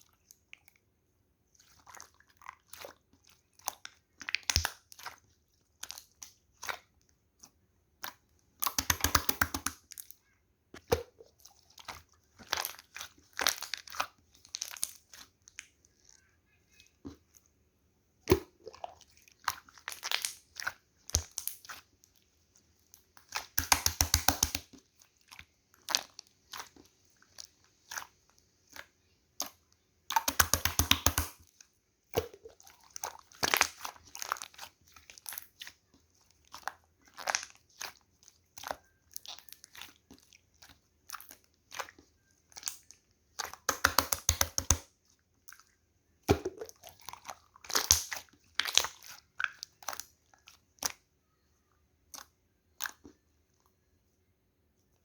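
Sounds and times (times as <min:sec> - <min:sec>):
slime crackling and clicking: 0:08.6 - 0:09.9, 0:23.4 - 0:24.7, 0:29.4 - 0:31.5, 0:42.6 - 0:44.9, 0:47.6 - 0:50.1.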